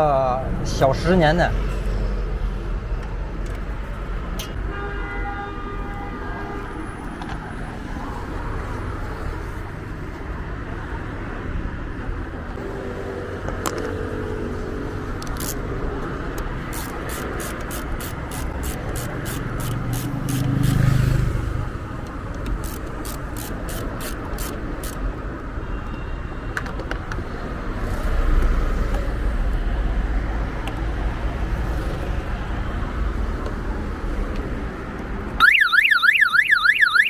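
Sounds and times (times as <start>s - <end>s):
passing traffic rumble: 0.0s - 4.8s, 5.6s - 37.0s
ratchet wrench clicking: 15.2s - 15.7s, 16.3s - 20.9s, 22.0s - 25.1s
car alarm warbling siren: 35.4s - 37.0s.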